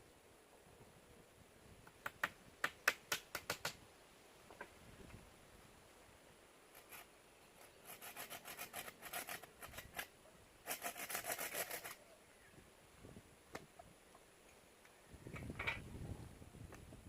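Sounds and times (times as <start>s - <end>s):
rasping strokes on wood: 6.8s - 12.0s.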